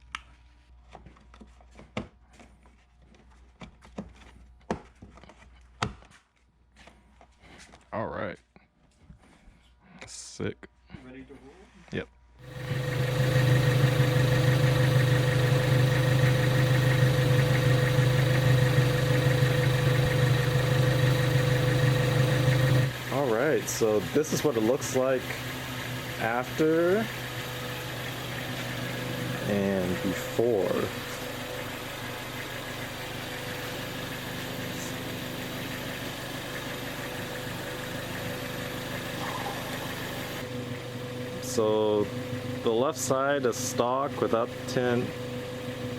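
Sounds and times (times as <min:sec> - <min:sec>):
car engine idling: 0:12.4 - 0:45.9.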